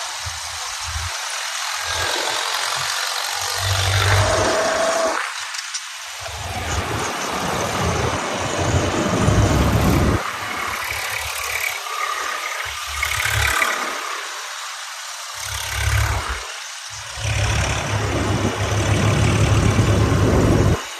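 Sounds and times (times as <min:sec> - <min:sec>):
continuous noisy hiss: 0:00.0 - 0:20.9
tractor engine running: 0:06.2 - 0:11.7, 0:12.7 - 0:13.7, 0:15.5 - 0:20.9.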